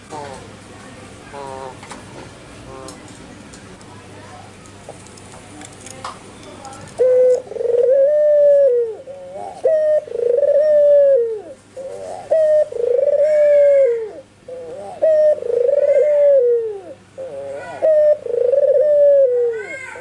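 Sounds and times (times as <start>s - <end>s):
dove cooing: 7.0s - 20.0s.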